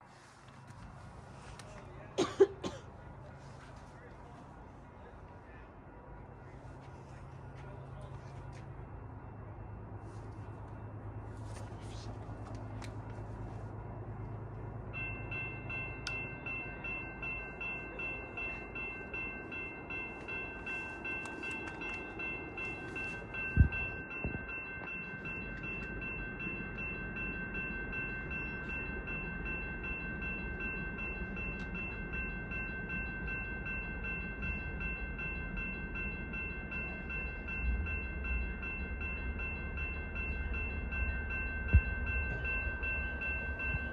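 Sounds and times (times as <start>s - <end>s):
railroad warning bell ringing: 0.0s - 43.9s.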